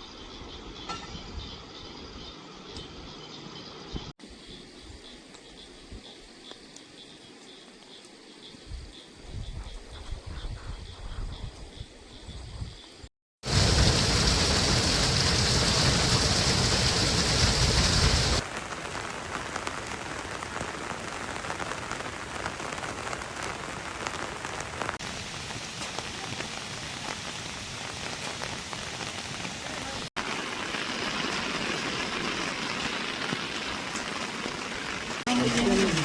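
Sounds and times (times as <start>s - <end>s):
heavy rain falling: 13.4s - 36.0s.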